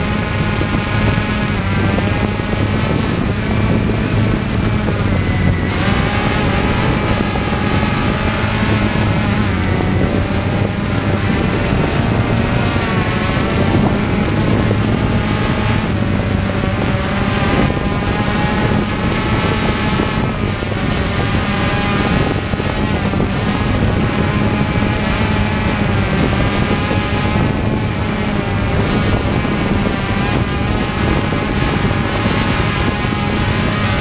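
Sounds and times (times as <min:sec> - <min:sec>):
aircraft engine and propeller drone: 0:00.0 - 0:34.0
wind noise: 0:00.0 - 0:34.0.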